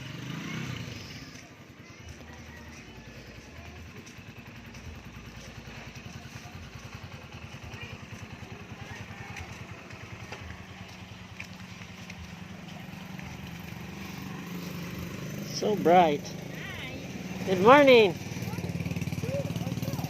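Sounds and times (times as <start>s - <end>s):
small motorcycle engine running: 0.0s - 20.0s.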